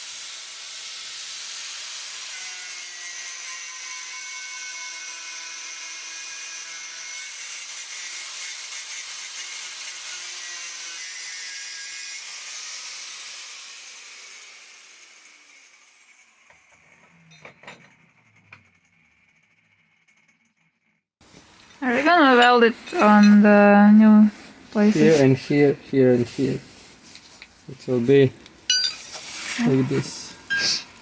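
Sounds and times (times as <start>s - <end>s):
angle grinder grinding steel: 0.1s - 20.9s, 27.8s - 31.0s.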